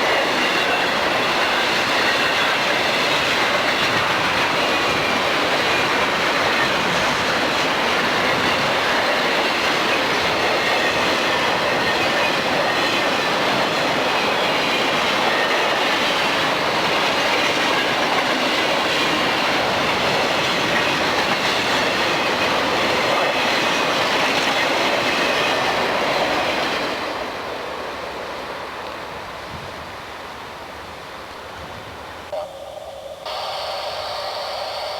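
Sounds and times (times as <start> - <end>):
train wheels clattering over rail joints: 0.0 - 27.3.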